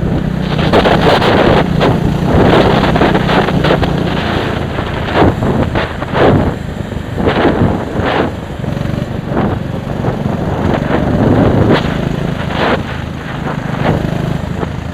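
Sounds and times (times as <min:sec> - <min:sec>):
small vehicle engine running: 0:00.0 - 0:14.9
wind buffeting microphone: 0:00.0 - 0:14.9.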